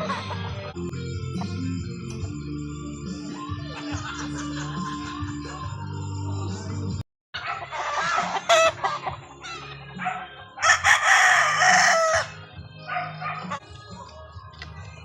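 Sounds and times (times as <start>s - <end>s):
roosters crowing: 7.4s - 13.7s.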